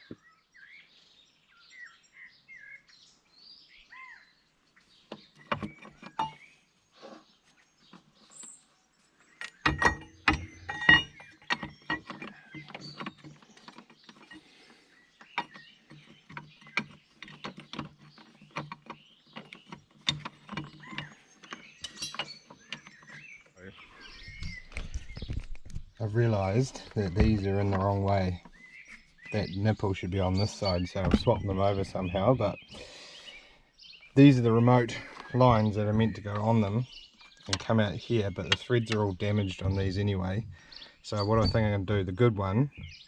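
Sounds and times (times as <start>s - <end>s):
birds chirping: 0.0s - 43.0s
metallic ratchet clicks and knocks: 9.4s - 14.4s, 15.2s - 23.1s.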